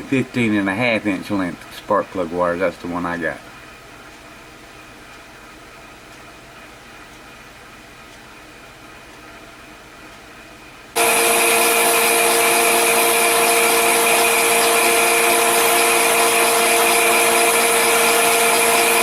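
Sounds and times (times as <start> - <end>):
machine whirring with high hiss: 11.0 - 19.0.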